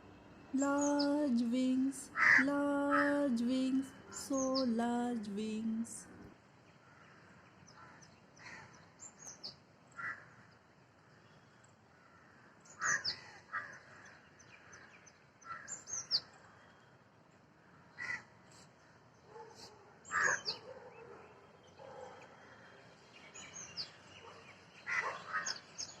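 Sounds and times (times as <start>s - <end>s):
harsh bird calls: 20.1s - 20.7s, 23.4s - 26.0s.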